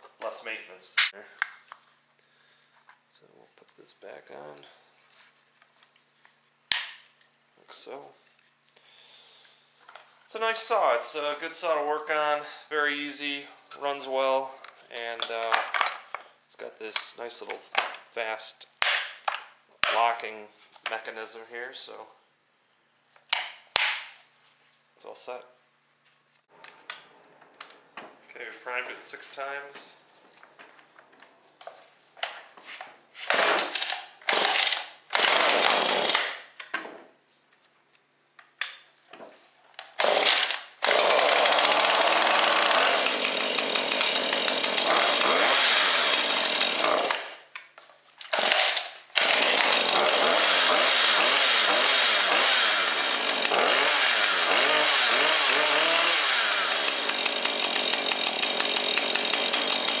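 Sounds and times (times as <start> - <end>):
chainsaw starter pulls: 33.2 - 36.4, 39.8 - 47.5, 48.3 - 60.0
chainsaw running: 33.3 - 36.4, 40.0 - 47.4, 48.3 - 60.0.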